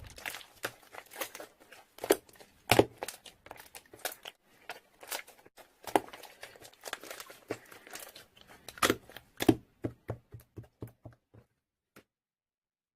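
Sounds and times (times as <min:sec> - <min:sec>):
crinkling and crackling up close: 0:00.0 - 0:09.8.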